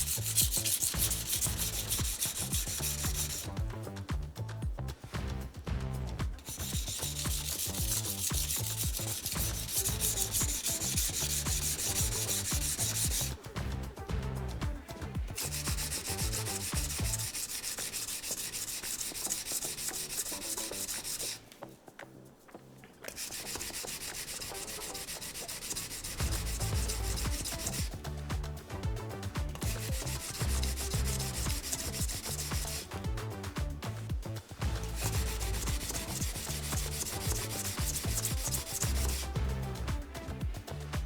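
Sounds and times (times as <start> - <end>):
knife scraping on whetstone: 0.0 - 3.6, 6.4 - 13.4, 15.4 - 21.7, 23.0 - 27.9, 29.6 - 33.0, 34.6 - 39.5.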